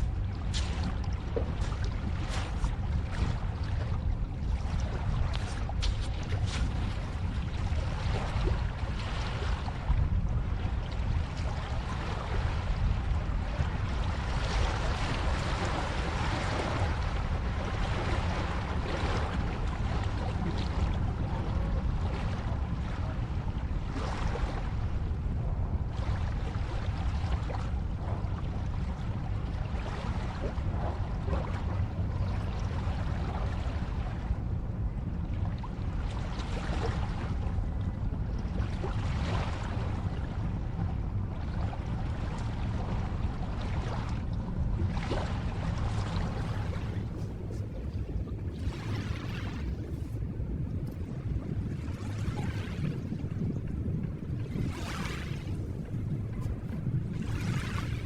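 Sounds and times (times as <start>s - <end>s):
ocean waves washing: 0.0s - 58.0s.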